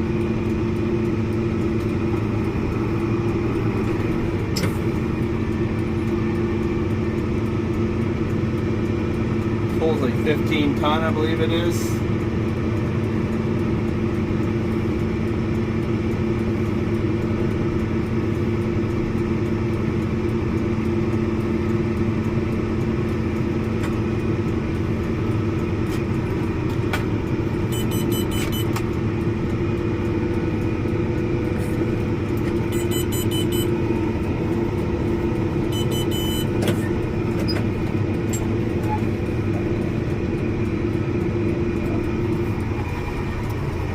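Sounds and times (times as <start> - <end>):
tractor engine droning: 0.0 - 43.9
high-pitched beeping: 27.6 - 28.8, 32.6 - 34.2, 35.5 - 36.9.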